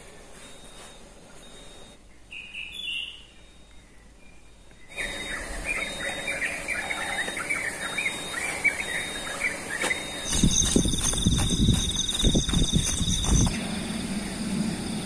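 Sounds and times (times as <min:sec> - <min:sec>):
birds chirping: 0:01.7 - 0:13.6.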